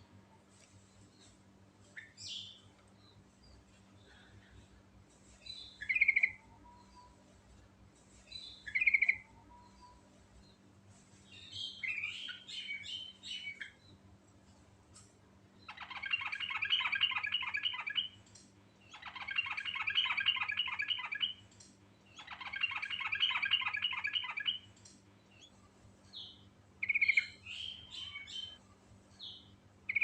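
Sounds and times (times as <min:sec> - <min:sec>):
bird singing bubbly phrases: 0:15.7 - 0:18.1, 0:18.9 - 0:21.4, 0:22.2 - 0:24.7.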